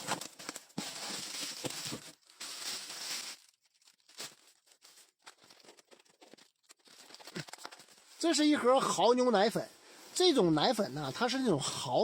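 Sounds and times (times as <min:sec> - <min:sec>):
packaging crinkling and rustling: 0:00.0 - 0:08.4.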